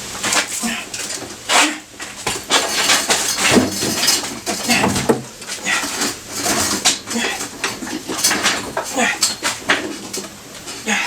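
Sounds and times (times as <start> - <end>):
metallic clanking and scraping: 0.2 - 10.9.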